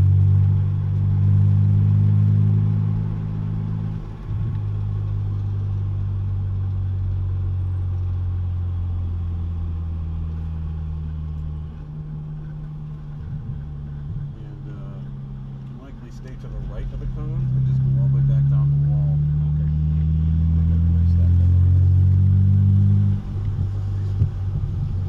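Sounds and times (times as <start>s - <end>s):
car engine droning: 0.0s - 25.0s.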